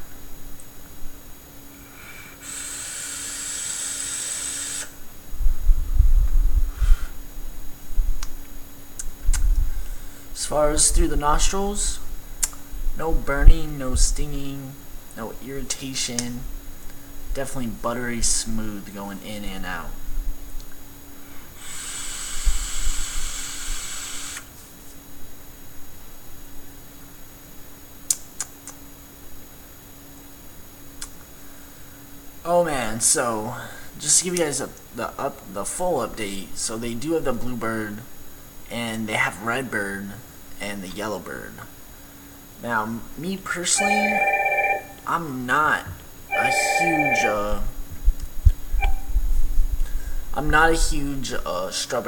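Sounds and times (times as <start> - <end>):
exhale blowing across microphone: 1.8 - 5.0, 6.6 - 7.2
vape coil sizzling hiss: 2.0 - 5.0, 21.6 - 24.5.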